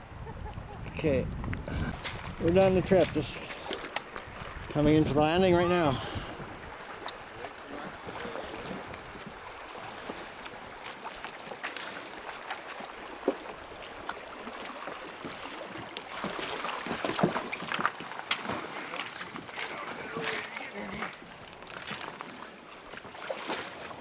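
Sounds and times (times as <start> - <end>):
paddle splashes and drips: 1.4 - 24.0
paddle knocking against hull: 15.1 - 20.4.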